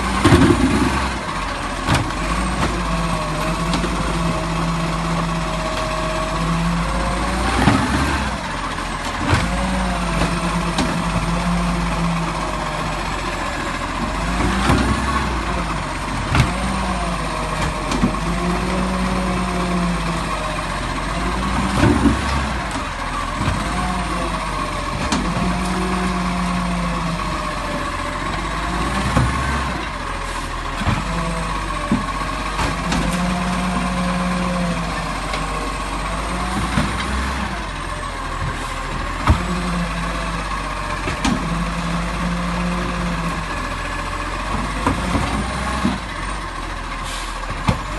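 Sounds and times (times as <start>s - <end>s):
garbage truck droning hum: 0.0s - 47.9s
sharp knocks and clunks: 16.3s - 16.7s, 21.5s - 22.8s, 28.8s - 29.6s, 39.2s - 39.6s, 41.0s - 41.6s, 44.5s - 46.0s, 47.5s - 47.9s.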